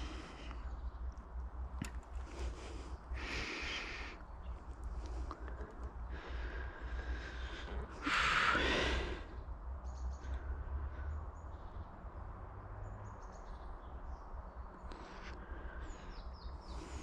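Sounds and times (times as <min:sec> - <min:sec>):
low outdoor rumble: 0:00.0 - 0:17.0
loud breath out: 0:06.1 - 0:09.4
faint bird chirps: 0:06.4 - 0:12.2, 0:12.8 - 0:17.0.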